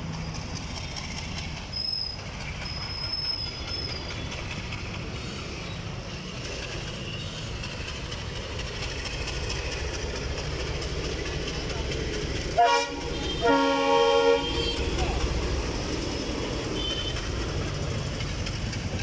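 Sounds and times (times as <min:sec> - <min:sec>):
wheels clattering over rail joints: 0:00.0 - 0:13.6, 0:14.4 - 0:19.0
diesel locomotive engine running: 0:00.0 - 0:19.0
high wheel squeal: 0:01.6 - 0:04.6, 0:05.2 - 0:08.0.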